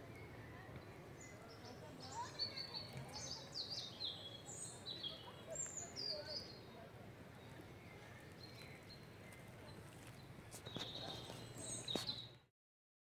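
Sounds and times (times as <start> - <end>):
small birds chirping: 0.0 - 12.5.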